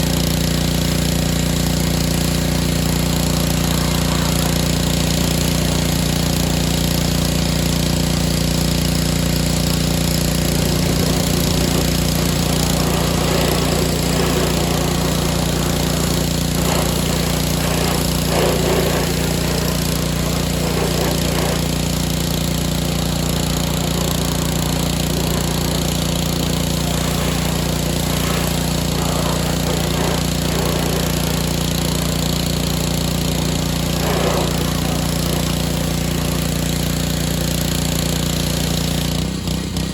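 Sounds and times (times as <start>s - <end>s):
small gas engine running: 0.0s - 39.9s
water spray hissing and splattering: 0.0s - 39.9s.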